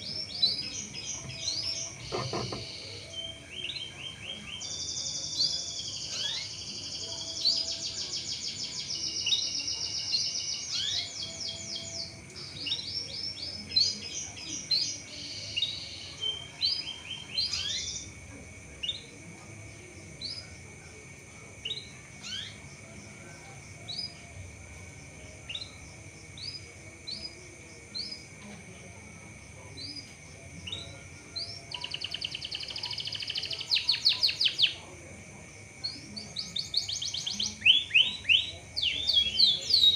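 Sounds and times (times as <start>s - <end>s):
canary trilling and chirping: 0.2s - 8.5s, 14.7s - 18.0s.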